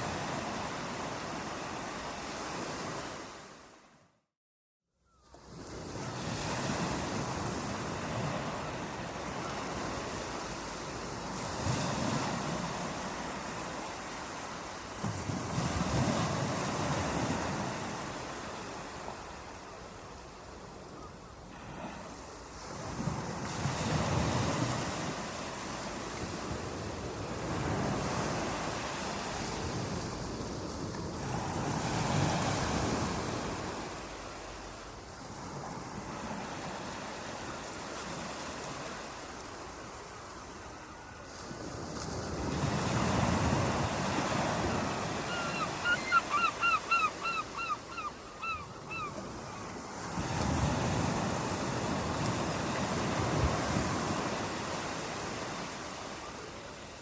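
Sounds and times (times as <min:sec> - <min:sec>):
bird calling: 0:44.7 - 0:49.7.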